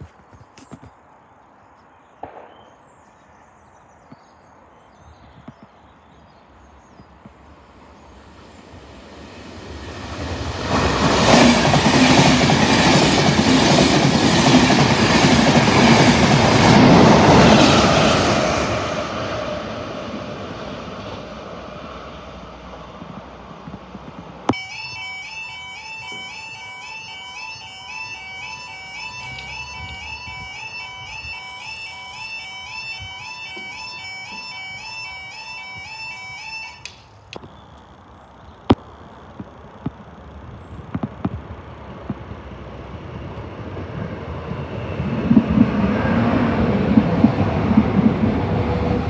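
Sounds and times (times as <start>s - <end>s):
train wheels clickety-clack on rails: 9.1s - 21.5s, 22.6s - 24.6s, 40.9s - 49.0s
low diesel drone: 24.5s - 37.0s.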